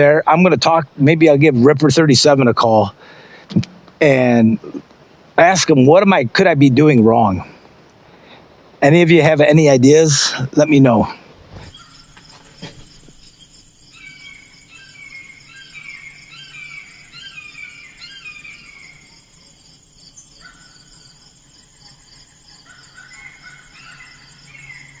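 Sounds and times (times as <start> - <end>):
high-pitched insect drone: 11.7 - 25.0.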